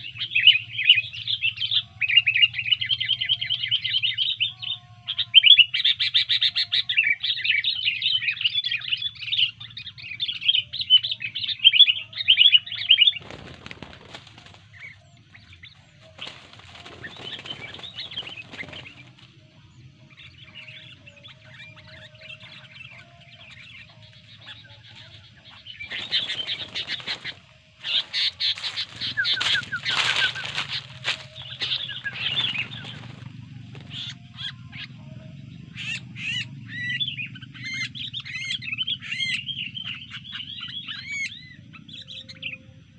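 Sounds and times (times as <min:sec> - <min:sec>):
bird chattering calls: 0:00.0 - 0:42.3
wing flapping: 0:13.0 - 0:15.0, 0:16.0 - 0:19.4, 0:25.8 - 0:34.2.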